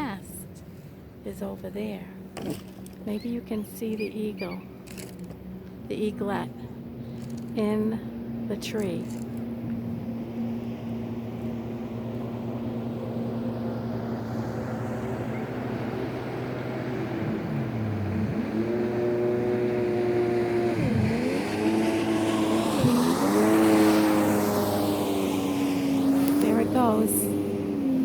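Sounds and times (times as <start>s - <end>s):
engine running and revving: 9.0s - 28.0s.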